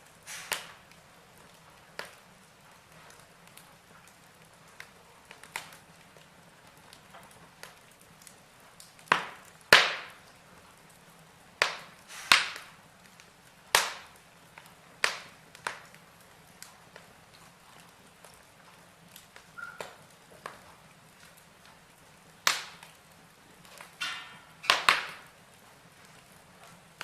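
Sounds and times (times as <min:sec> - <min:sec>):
logs crackling in fireplace: 0:00.0 - 0:27.0
sharp loud pops of fire: 0:00.2 - 0:00.9, 0:09.0 - 0:10.2, 0:11.6 - 0:12.8, 0:13.7 - 0:15.9, 0:22.4 - 0:22.9, 0:23.6 - 0:25.3.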